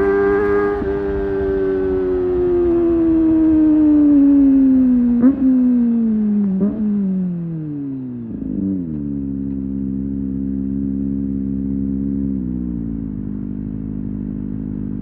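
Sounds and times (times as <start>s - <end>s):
motorcycle engine revs: 0.0s - 7.4s.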